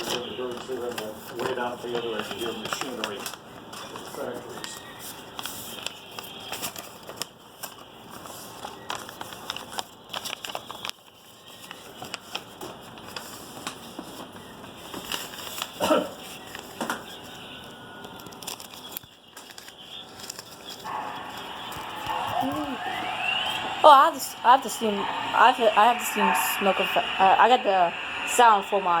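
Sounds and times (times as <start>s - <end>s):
small clicks and crackles: 5.4s - 17.4s, 18.0s - 20.9s
factory machinery: 20.8s - 29.0s.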